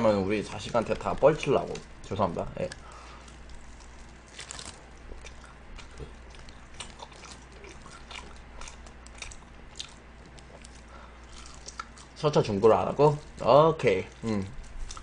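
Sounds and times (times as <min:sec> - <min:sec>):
fried chicken crunching: 0:00.0 - 0:15.0
wet chewing smacks: 0:02.6 - 0:12.2, 0:14.1 - 0:15.0.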